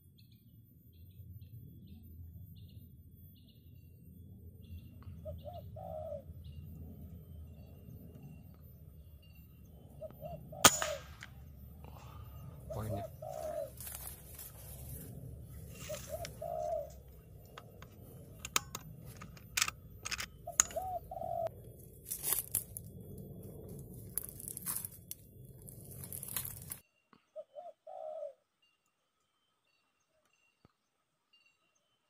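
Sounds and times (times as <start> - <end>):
dove cooing: 5.0 - 6.6, 9.8 - 11.2, 11.9 - 18.8, 20.0 - 21.6, 27.4 - 28.4
rustling: 21.8 - 26.8.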